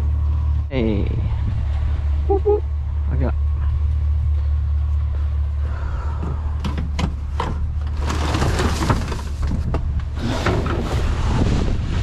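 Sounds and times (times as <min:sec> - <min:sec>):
low rumble: 0:00.0 - 0:12.0
wheelchair rattling clatter: 0:07.4 - 0:10.9.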